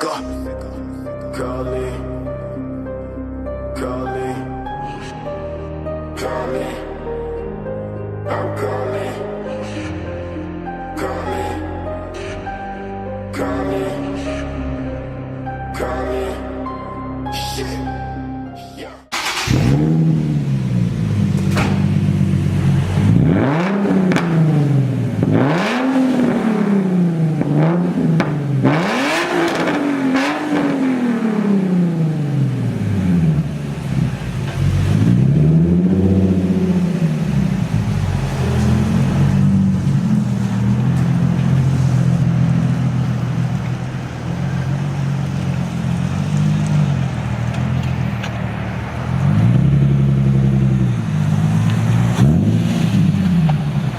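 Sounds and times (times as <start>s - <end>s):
car engine idling and revving: 19.2s - 53.9s.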